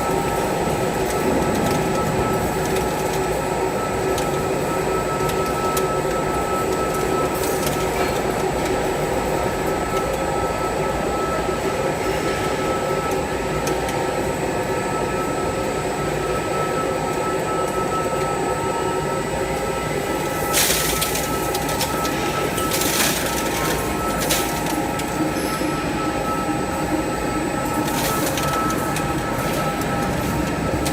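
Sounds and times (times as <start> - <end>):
milling machine whining hum: 0.0 - 30.9.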